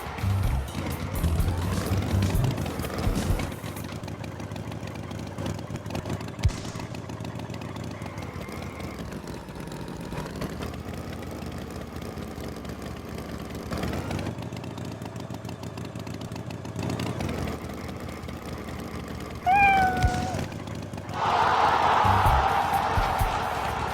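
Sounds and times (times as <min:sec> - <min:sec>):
cartoon tractor engine running: 0:00.0 - 0:23.9
short pitched call: 0:19.5 - 0:20.5.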